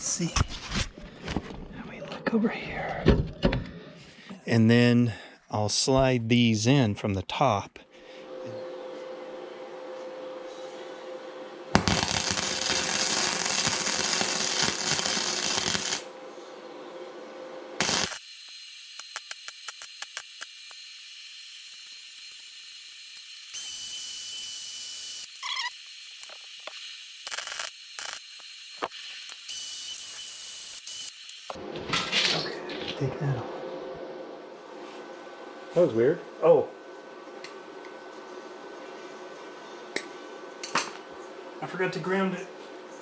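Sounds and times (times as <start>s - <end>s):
welder hissing: 11.8s - 16.1s, 17.8s - 31.6s
welding arc crackle: 11.8s - 16.1s, 17.8s - 31.6s.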